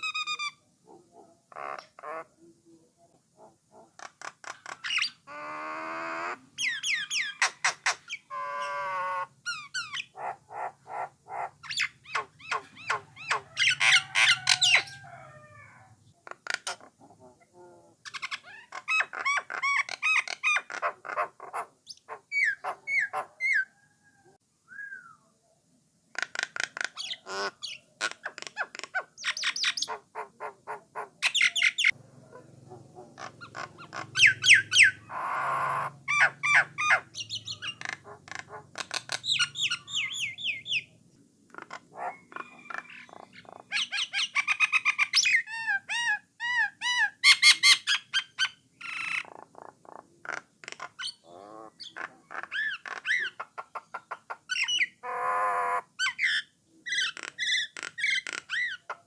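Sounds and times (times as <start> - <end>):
bird singing chattering song: 3.7 - 15.1, 18.0 - 23.7, 26.2 - 32.0, 32.7 - 41.0, 41.6 - 49.7, 50.4 - 59.0
bird harsh squawk: 4.0 - 15.6, 33.0 - 40.9, 41.6 - 49.3.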